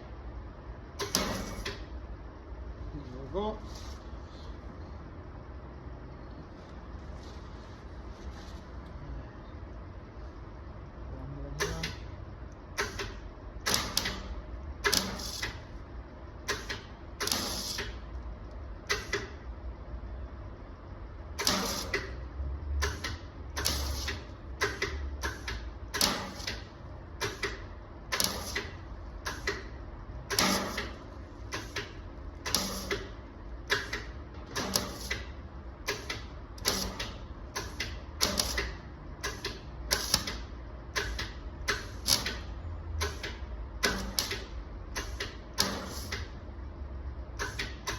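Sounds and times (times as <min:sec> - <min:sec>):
welding arc bursts: 0:14.8 - 0:15.6, 0:16.5 - 0:17.9, 0:21.4 - 0:22.1, 0:22.8 - 0:26.6, 0:32.5 - 0:33.1, 0:35.9 - 0:40.4.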